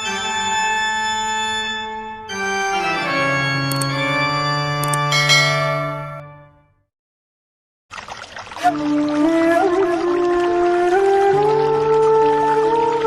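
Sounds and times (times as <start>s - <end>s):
organ-like keyboard chords: 0.0s - 6.6s
high tinkles: 4.8s - 6.4s.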